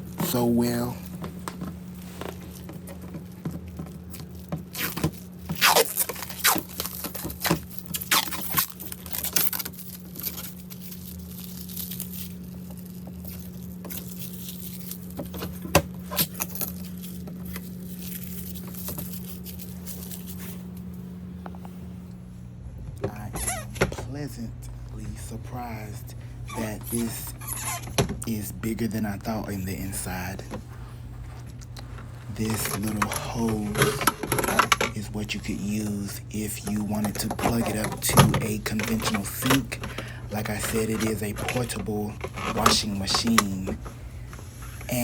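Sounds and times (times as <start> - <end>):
low hum: 0.0 - 45.0
plastic film crackling and ripping: 0.3 - 20.8, 31.4 - 45.0.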